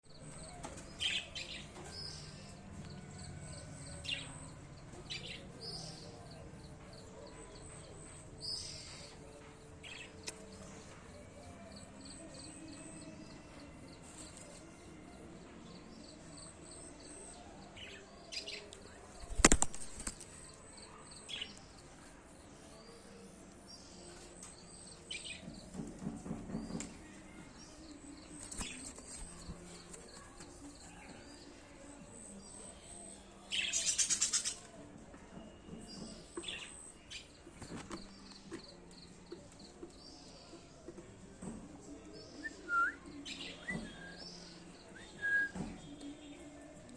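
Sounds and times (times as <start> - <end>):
bird chicks chirping: 19.2 - 20.3
wing flapping: 19.2 - 20.3, 28.4 - 30.8.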